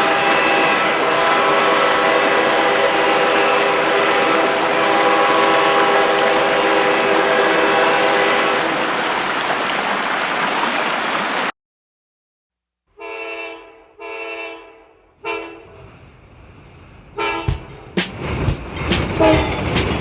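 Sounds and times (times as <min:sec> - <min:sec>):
train horn blasts: 0:00.0 - 0:08.8, 0:13.0 - 0:15.8, 0:17.2 - 0:18.0, 0:18.9 - 0:20.0
train passing close: 0:00.0 - 0:09.1, 0:14.9 - 0:20.0.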